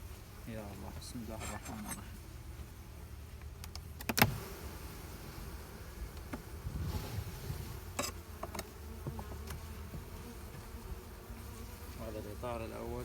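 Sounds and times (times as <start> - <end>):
bees buzzing: 4.2 - 13.0.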